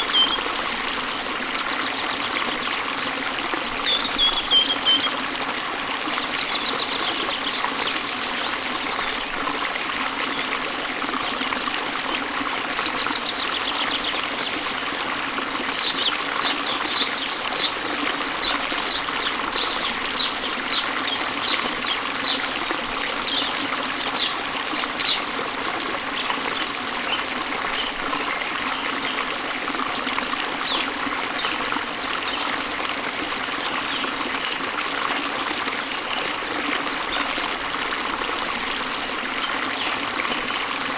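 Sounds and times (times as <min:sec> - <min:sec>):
bird singing: 0:00.0 - 0:00.4, 0:03.8 - 0:05.1
water rushing: 0:00.0 - 0:40.9.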